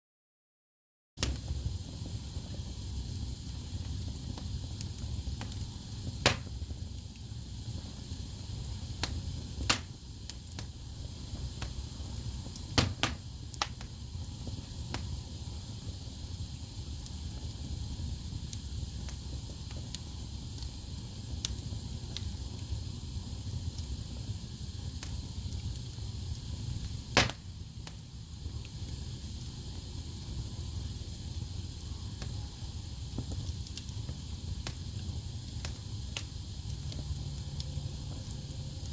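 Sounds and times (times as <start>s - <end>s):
wood fire burning: 1.2s - 38.9s
logs popping: 2.6s - 7.3s, 8.1s - 14.0s, 26.8s - 28.0s.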